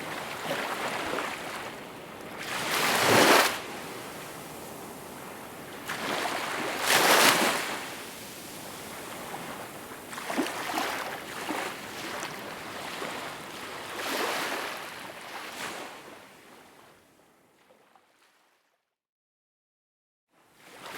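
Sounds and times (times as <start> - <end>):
small waves breaking: 2.4 - 7.9, 8.9 - 16.0.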